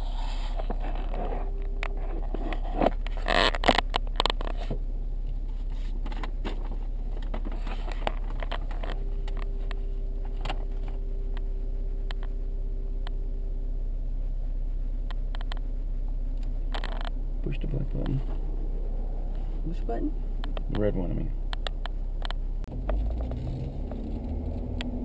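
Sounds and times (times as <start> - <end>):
sharp knocks and scrapes: 0.0 - 4.8, 5.6 - 11.0
faint steady whine: 0.0 - 23.1
car engine idling: 0.0 - 25.0.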